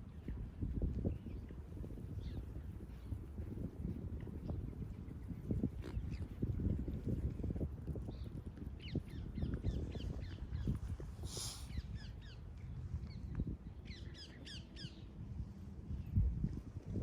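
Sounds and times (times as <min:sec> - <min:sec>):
wind buffeting microphone: 0:00.0 - 0:17.0
rush of hiss: 0:11.2 - 0:11.7.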